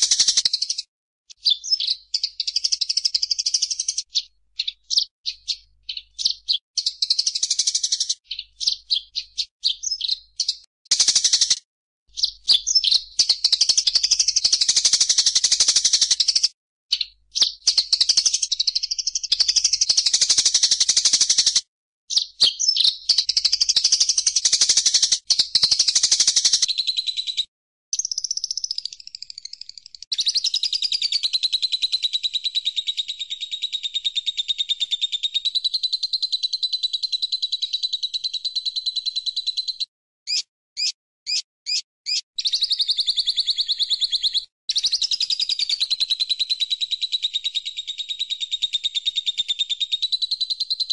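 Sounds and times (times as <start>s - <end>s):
bird chirps: 0.0s - 50.9s
songbird trilling: 1.4s - 11.6s, 12.2s - 14.1s.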